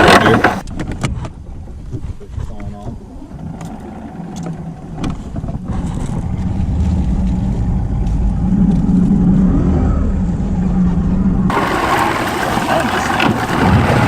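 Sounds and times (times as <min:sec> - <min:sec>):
outboard motor straining: 0:00.0 - 0:08.6, 0:11.5 - 0:14.0.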